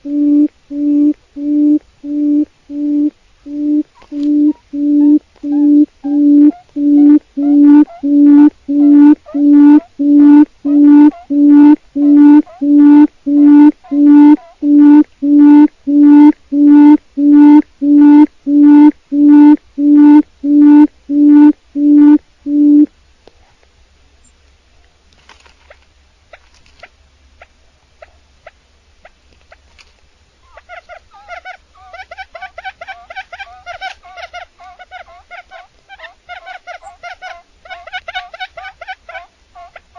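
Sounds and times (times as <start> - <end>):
quail hooting: 0.0 - 22.9, 30.4 - 39.9
faint ticks and chirps: 0.0 - 23.4.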